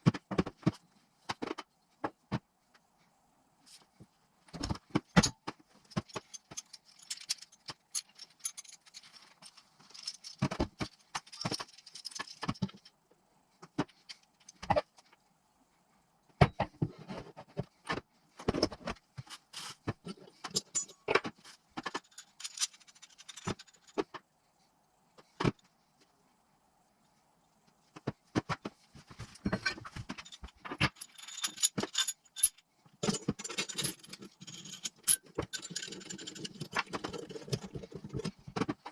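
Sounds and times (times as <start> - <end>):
metal tools clinking on workbench: 29.4 - 38.3.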